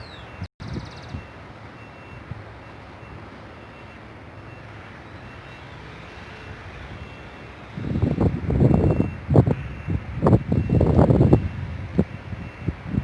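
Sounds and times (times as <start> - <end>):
wind rumbling on microphone: 0.0 - 1.4, 6.2 - 13.0.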